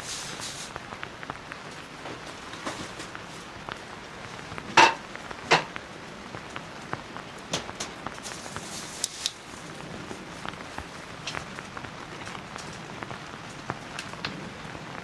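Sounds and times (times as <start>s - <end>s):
rain pattering on tent: 0.0s - 15.0s
metal cookware clanking: 4.7s - 5.7s.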